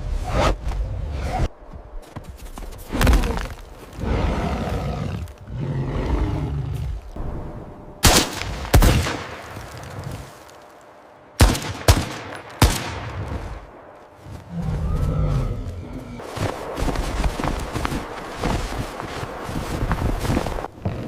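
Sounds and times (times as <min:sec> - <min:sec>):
rough low noise: 0:02.9 - 0:20.7
sharp bangs: 0:07.2 - 0:10.0, 0:11.3 - 0:13.9.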